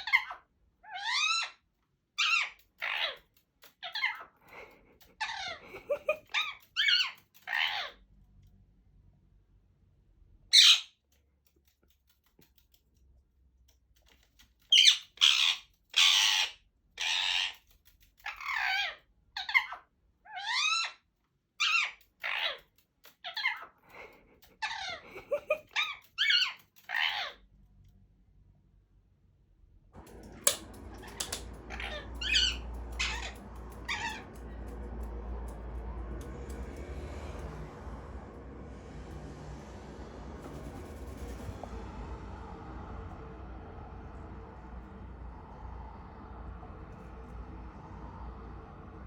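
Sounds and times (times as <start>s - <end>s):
parakeets squawking: 0.0s - 1.6s, 2.2s - 3.2s, 5.2s - 8.0s, 10.5s - 10.9s, 14.7s - 17.6s, 24.6s - 27.4s, 30.0s - 38.2s
parakeet loud screech: 10.5s - 10.9s, 14.7s - 17.5s, 30.9s - 34.3s
rising whistles: 30.0s - 49.0s.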